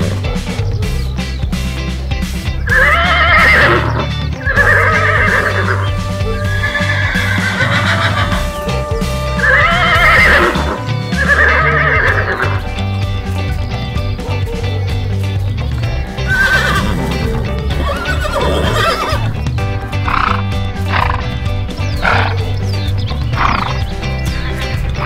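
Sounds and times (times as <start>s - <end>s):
background music with low bass: 0.0s - 25.0s
horse whinnying: 2.6s - 12.7s, 16.2s - 21.3s, 22.0s - 22.4s.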